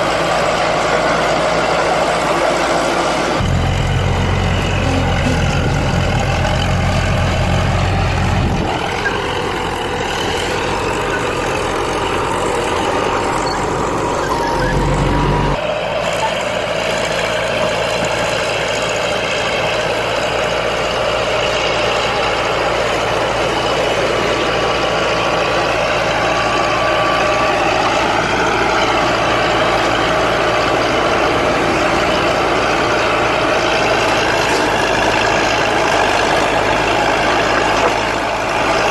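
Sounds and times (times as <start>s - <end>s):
bulldozers working: 0.0s - 38.9s
deep rumble: 3.4s - 8.9s.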